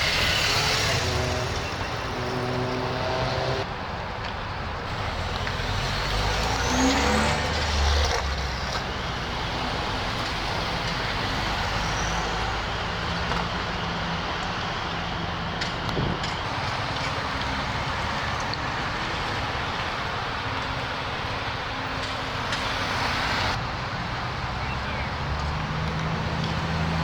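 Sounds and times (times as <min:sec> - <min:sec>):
car revving and pulling away: 0:00.0 - 0:03.8, 0:04.8 - 0:23.6, 0:24.2 - 0:27.0
car engines running: 0:00.0 - 0:27.0.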